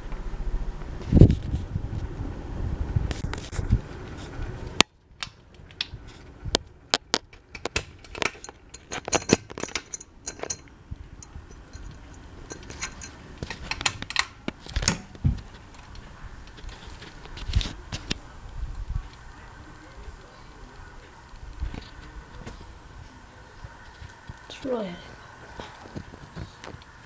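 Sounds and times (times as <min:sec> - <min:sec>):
ceiling fan running: 0:00.0 - 0:27.0
sharp clicks and metallic clinks: 0:06.9 - 0:16.0.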